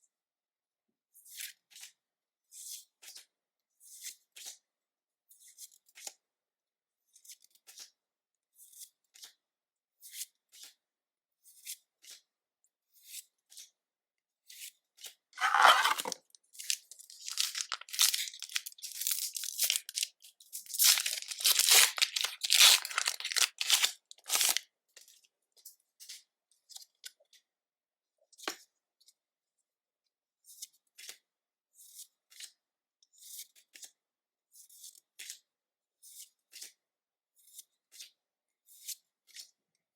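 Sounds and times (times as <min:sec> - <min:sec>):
foil wrapper ripping: 0:15.4 - 0:20.1, 0:20.7 - 0:24.6
foil wrapper crinkling: 0:15.4 - 0:24.6.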